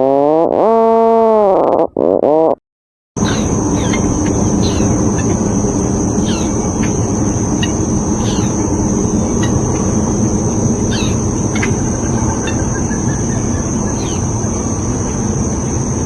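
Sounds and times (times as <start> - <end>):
high-pitched drone: 3.2 - 16.0
steady low rumble: 3.2 - 16.0.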